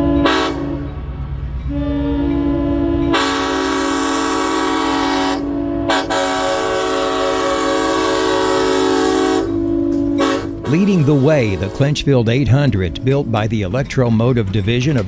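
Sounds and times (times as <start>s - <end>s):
locomotive air horn blasts: 0.0s - 1.0s, 1.7s - 12.1s.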